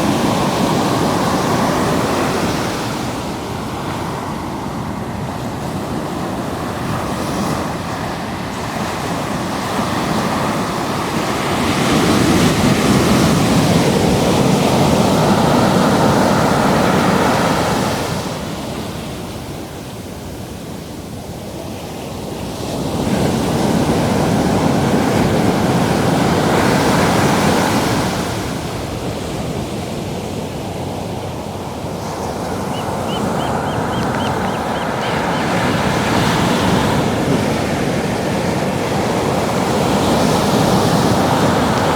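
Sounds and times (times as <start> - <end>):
surf waves breaking: 30.2 - 41.9.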